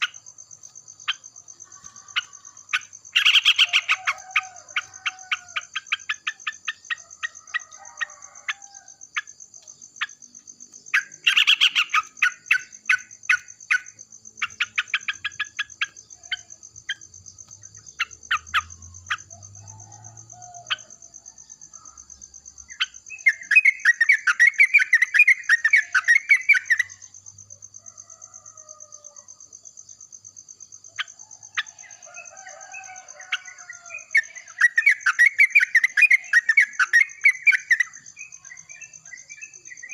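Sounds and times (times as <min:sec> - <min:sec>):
birds calling: 0:00.0 - 0:10.2, 0:10.9 - 0:21.0, 0:31.0 - 0:39.9.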